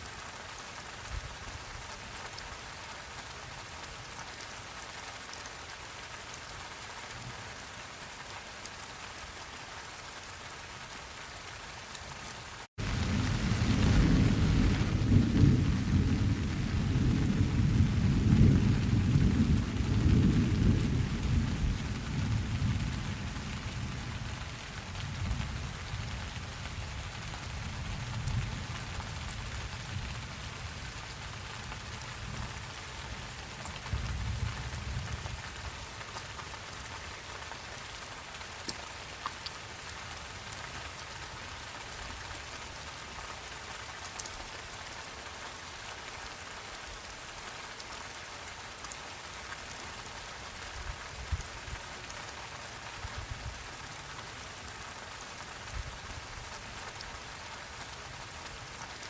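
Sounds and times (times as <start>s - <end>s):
steady rain: 0.0s - 59.0s
thunder rumbling: 12.8s - 24.4s.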